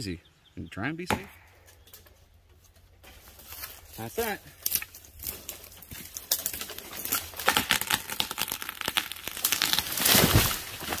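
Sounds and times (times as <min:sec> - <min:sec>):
rustling and crackling: 0:01.6 - 0:11.0.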